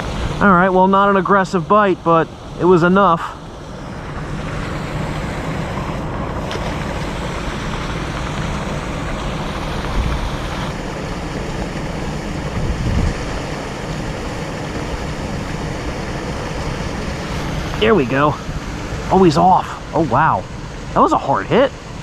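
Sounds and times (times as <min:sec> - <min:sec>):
wind rumbling on microphone: 0:00.0 - 0:00.8, 0:03.5 - 0:21.1
heavy rain: 0:00.0 - 0:22.0.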